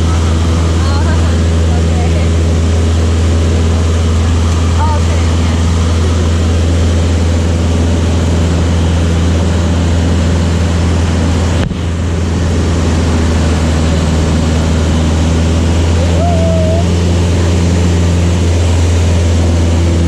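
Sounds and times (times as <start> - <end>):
aircraft engine and propeller droning: 0.0 - 20.0.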